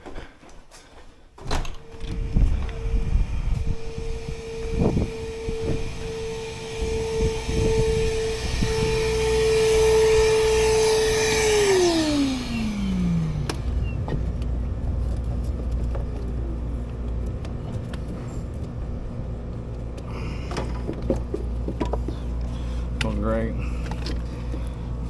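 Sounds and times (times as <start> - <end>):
low steady hum: 1.4 - 25.0
shop vac spinning down: 1.8 - 21.6.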